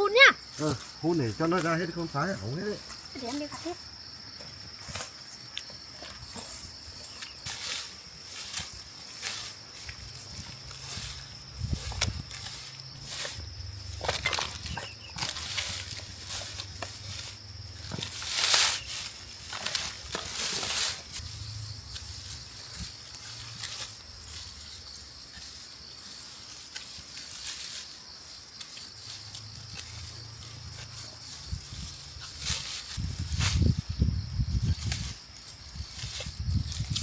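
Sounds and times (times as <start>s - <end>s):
dry rice stalks rustling: 0.1s - 37.0s.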